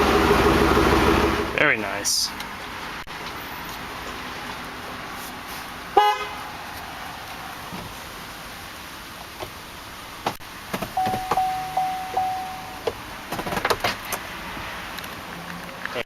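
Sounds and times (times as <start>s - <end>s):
vehicle horn honk: 6.0s - 6.4s, 11.0s - 12.8s
steady electronic tone: 11.0s - 12.9s.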